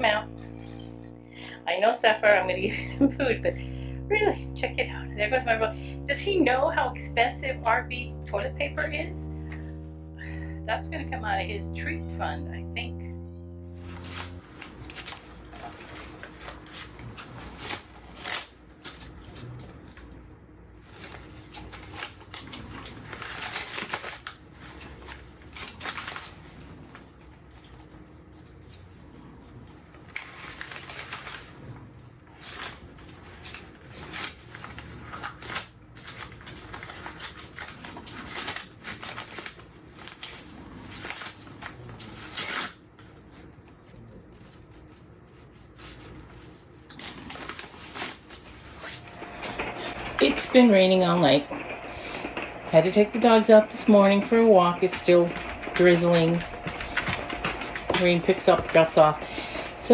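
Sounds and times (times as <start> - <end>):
dog tearing paper: 13.8 - 19.8, 20.8 - 52.2, 52.9 - 59.9
paper ripping and rustling: 13.8 - 19.8, 20.8 - 50.4, 54.3 - 59.9.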